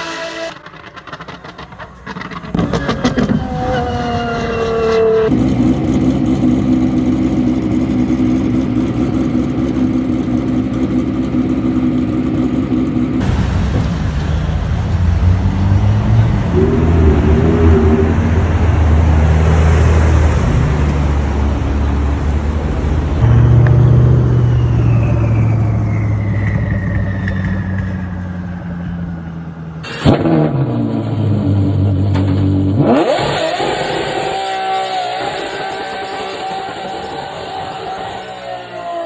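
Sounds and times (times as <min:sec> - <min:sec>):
car passing with falling whine: 0:00.0 - 0:06.0, 0:13.2 - 0:32.2
car engine exhaust note: 0:00.0 - 0:39.0
engine revving: 0:00.0 - 0:39.0
sharp crack: 0:00.5 - 0:03.4.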